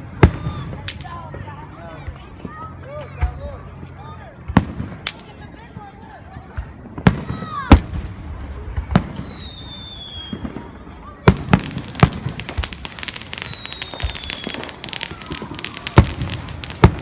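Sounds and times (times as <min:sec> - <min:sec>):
firework bangs: 0:00.1 - 0:01.3, 0:04.5 - 0:05.5, 0:07.0 - 0:17.0
firework crackling: 0:00.3 - 0:01.3, 0:04.6 - 0:05.5, 0:08.8 - 0:17.0
firework falling whistle: 0:08.9 - 0:10.4, 0:11.4 - 0:17.0.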